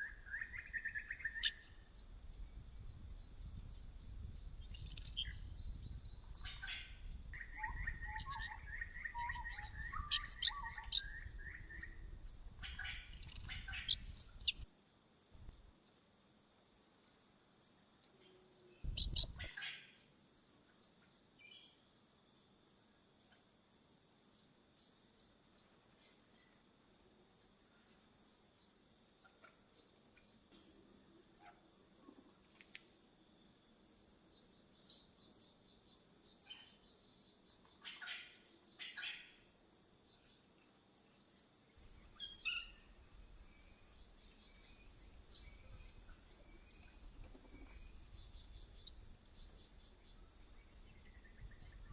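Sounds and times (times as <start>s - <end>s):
fuller bird calls: 0.0s - 14.7s, 18.2s - 20.4s, 34.0s - 51.9s
high thin bird chirps: 0.0s - 14.7s, 15.3s - 15.7s, 18.8s - 19.7s.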